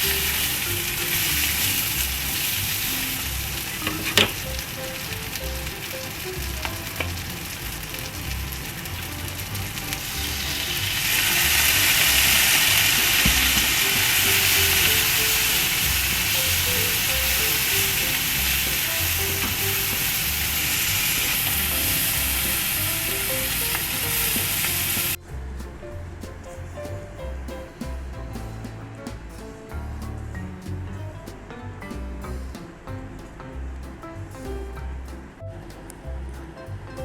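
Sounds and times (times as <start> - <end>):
onions sizzling in hot oil: 0.0 - 25.2.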